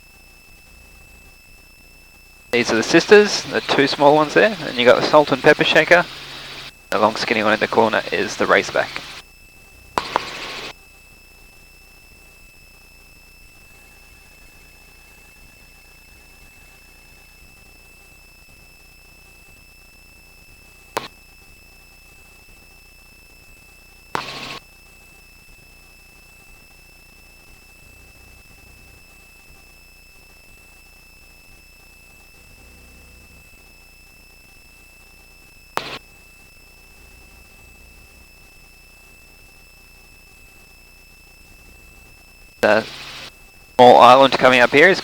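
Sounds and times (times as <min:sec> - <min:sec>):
intercom hiss: 0:02.6 - 0:09.2, 0:10.0 - 0:10.7, 0:24.2 - 0:24.6, 0:35.8 - 0:36.0, 0:42.6 - 0:45.0
short bursts of noise: 0:10.0 - 0:10.7, 0:35.8 - 0:36.0, 0:42.6 - 0:45.0.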